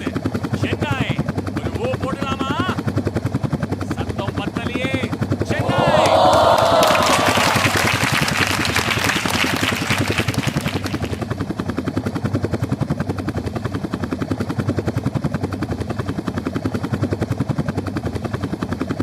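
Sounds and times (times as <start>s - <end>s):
helicopter rotor chopping: 0.0s - 19.0s
broad rush of noise: 5.5s - 11.2s.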